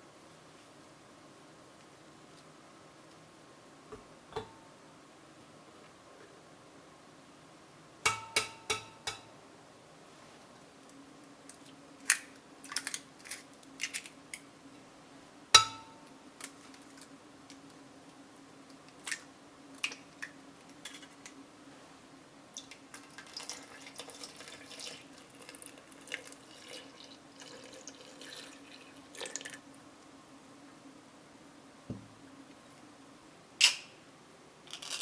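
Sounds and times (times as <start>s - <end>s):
faint steady hum: 0.0s - 35.0s
water trickling: 23.0s - 29.6s.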